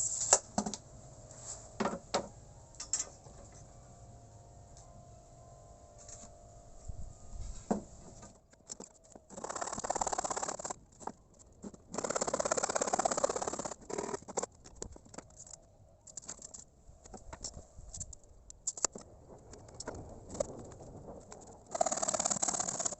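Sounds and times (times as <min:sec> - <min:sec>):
small clicks and knocks: 0:07.7 - 0:09.4, 0:14.2 - 0:21.6.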